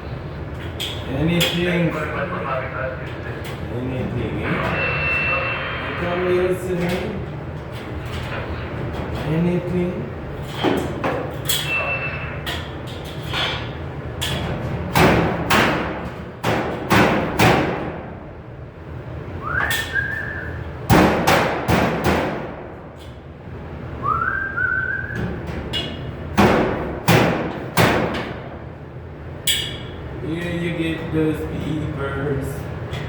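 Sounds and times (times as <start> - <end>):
sheet metal knocks and bangs: 14.9 - 18.1, 20.9 - 22.7, 25.6 - 28.5
person whistling: 19.4 - 20.6, 24.0 - 25.2.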